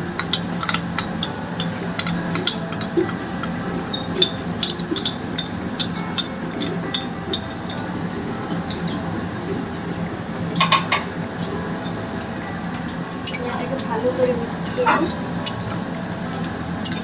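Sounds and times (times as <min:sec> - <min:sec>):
utensil clinking against cookware: 0:00.0 - 0:17.0.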